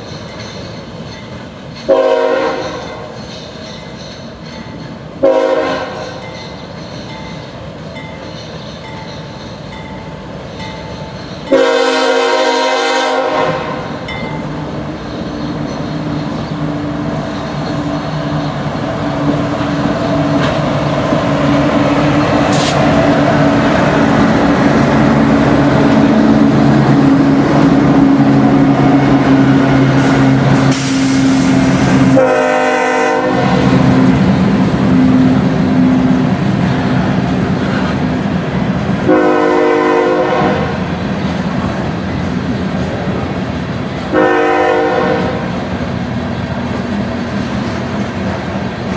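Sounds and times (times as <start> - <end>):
diesel locomotive engine rumble: 0.0 - 48.9
locomotive horn: 1.9 - 3.0, 5.2 - 6.2, 11.5 - 14.0, 28.7 - 34.2, 39.0 - 40.9, 44.1 - 45.6.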